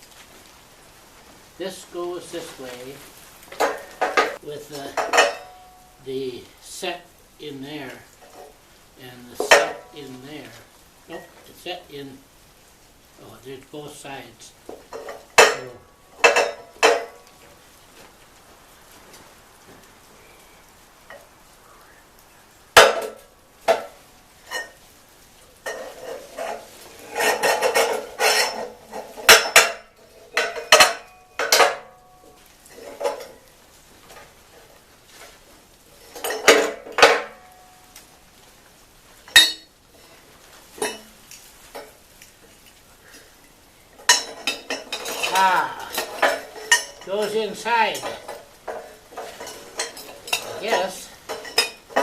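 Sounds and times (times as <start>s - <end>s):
metal rattling and scraping: 2.2s - 6.0s, 7.8s - 11.5s, 14.6s - 18.2s, 22.8s - 37.8s, 44.0s - 52.0s
metal pieces clanking: 3.5s - 5.8s, 25.6s - 33.4s, 44.0s - 52.0s.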